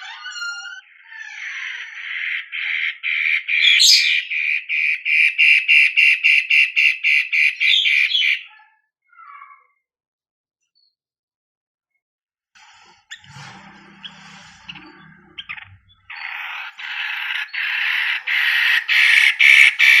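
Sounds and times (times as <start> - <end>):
bird singing harsh repeated notes: 0.0 - 8.6, 13.0 - 20.0.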